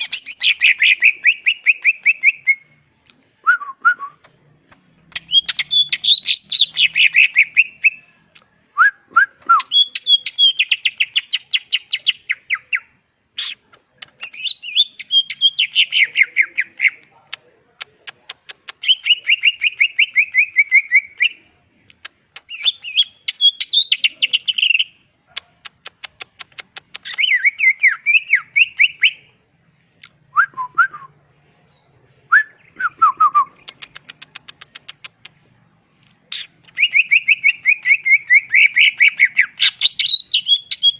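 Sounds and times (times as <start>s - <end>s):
bird chattering song: 0.0s - 2.7s, 5.0s - 8.1s, 9.6s - 29.3s, 33.4s - 35.4s, 36.3s - 40.9s
slurred bird whistles: 0.0s - 2.7s, 5.1s - 8.0s, 22.4s - 24.9s, 26.9s - 29.3s, 36.3s - 40.9s.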